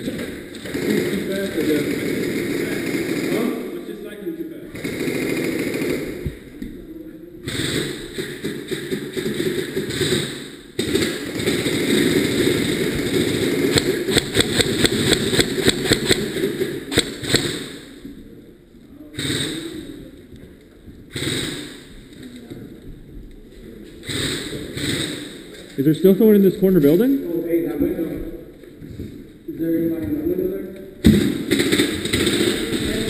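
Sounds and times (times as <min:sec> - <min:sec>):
airsoft gun firing sharp shots: 0:00.0 - 0:03.7, 0:04.7 - 0:06.4, 0:07.4 - 0:18.0, 0:19.2 - 0:20.0, 0:21.1 - 0:22.2, 0:24.0 - 0:25.5, 0:31.0 - 0:33.0.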